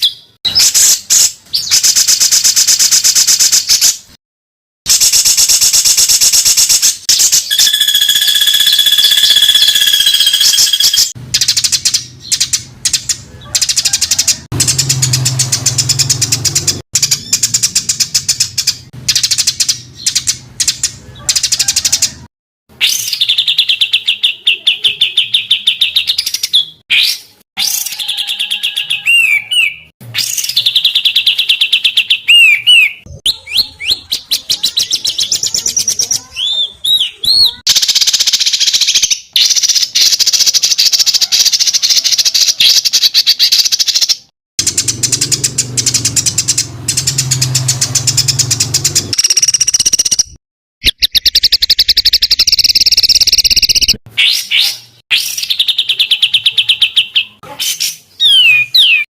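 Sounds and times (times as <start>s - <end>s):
songbird trills and whistles: 7.1s - 14.3s, 22.8s - 44.1s, 49.2s - 59.0s.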